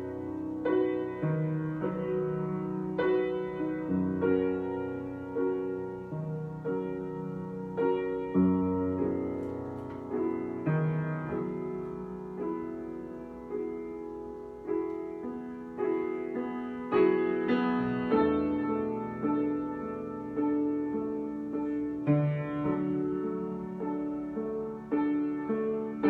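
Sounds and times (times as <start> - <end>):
solo piano slow chords: 0.0 - 26.0.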